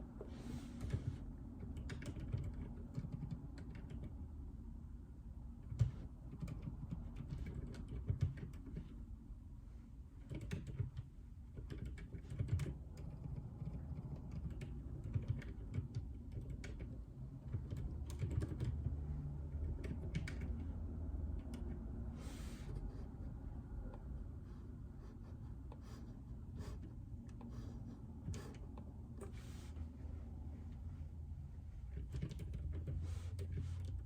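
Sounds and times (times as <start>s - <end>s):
muffled keyboard keystrokes: 0.2s - 4.2s, 5.6s - 9.1s, 10.2s - 22.1s, 31.8s - 34.0s.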